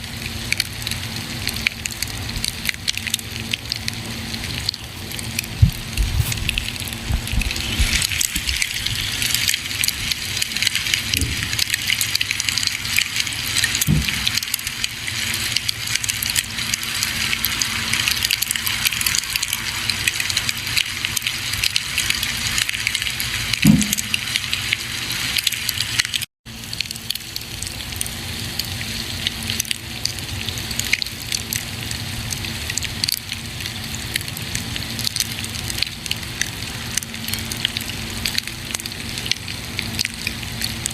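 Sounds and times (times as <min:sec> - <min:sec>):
campfire crackling and hissing: 0:00.0 - 0:40.9
fire popping: 0:04.6 - 0:15.7
low thumps: 0:05.6 - 0:08.0.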